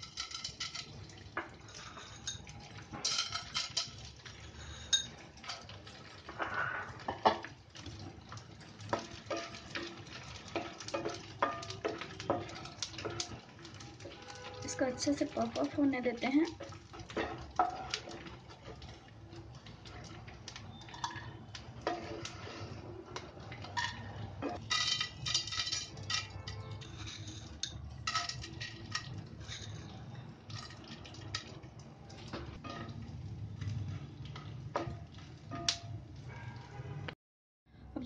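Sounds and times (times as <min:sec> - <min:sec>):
spatula scraping and knocking pan: 0:00.0 - 0:07.6, 0:08.8 - 0:36.0
gum sizzling and crackling in oil: 0:00.0 - 0:37.2.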